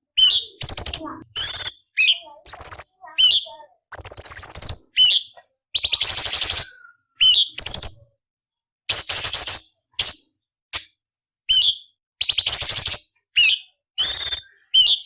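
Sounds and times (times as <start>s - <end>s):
bird singing: 0.0s - 8.1s, 11.5s - 15.0s.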